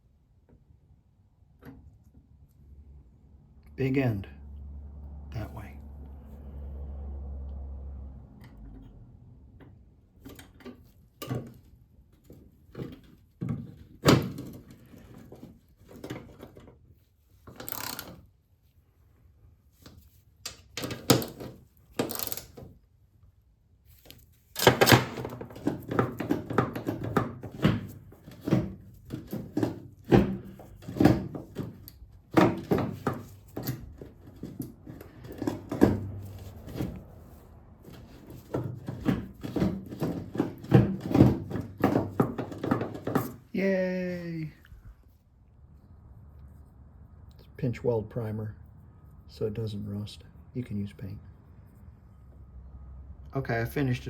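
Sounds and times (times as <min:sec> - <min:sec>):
knocks and clunks of car repair: 0:08.3 - 0:16.8, 0:19.8 - 0:22.7, 0:24.6 - 0:43.5.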